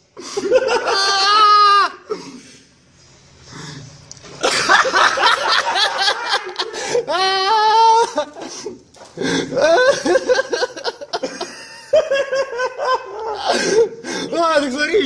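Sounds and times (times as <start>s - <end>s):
loud laughter: 0.2s - 2.1s, 4.4s - 14.0s.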